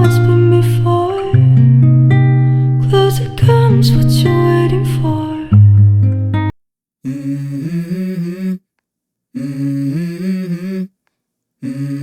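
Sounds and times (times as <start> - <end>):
person humming a melody: 7.1 - 8.6, 9.4 - 10.9, 11.6 - 12.0.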